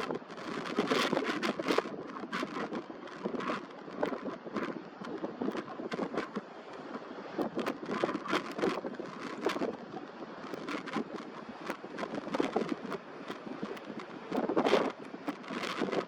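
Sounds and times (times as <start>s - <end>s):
gusty wind buffeting microphone: 0.0s - 16.0s.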